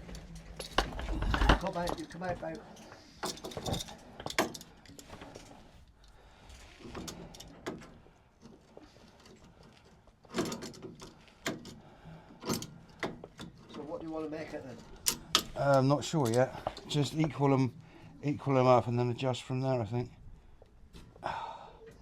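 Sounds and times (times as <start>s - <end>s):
hand tools clicking and clanking: 0.0s - 6.2s, 6.8s - 17.3s.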